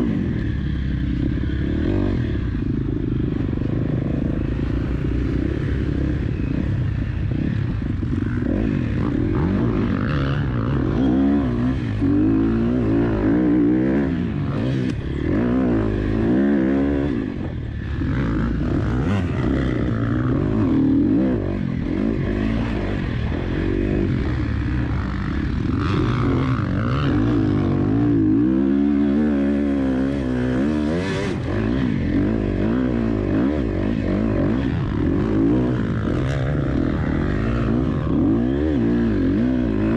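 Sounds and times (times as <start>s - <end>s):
motocross engine revving: 8.2s - 39.9s.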